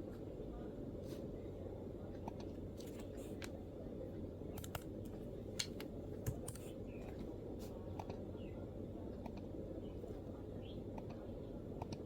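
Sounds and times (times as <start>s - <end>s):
low background hum: 0.0s - 12.0s
laptop keyboard clicks: 4.6s - 4.9s, 5.6s - 6.7s.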